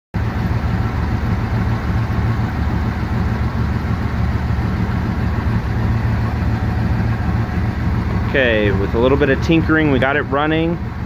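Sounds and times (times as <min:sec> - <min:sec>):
car engine idling: 0:00.2 - 0:11.0.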